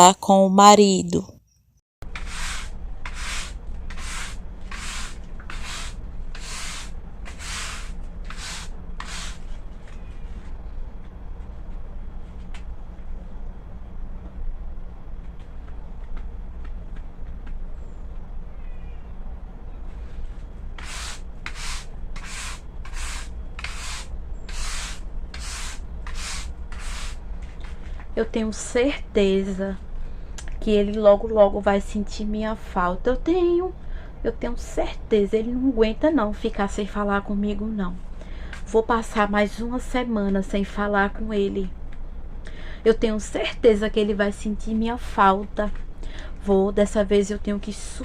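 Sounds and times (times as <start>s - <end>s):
steady low hum: 2.0s - 48.0s
scratchy brushing strokes: 2.1s - 10.5s, 19.9s - 27.9s.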